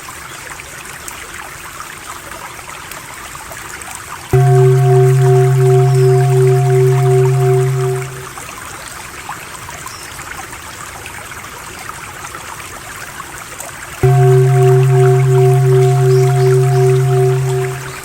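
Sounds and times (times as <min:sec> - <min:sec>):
stream water trickling: 0:00.0 - 0:08.4, 0:13.6 - 0:18.0
low droning chant: 0:04.4 - 0:08.4, 0:14.0 - 0:18.0.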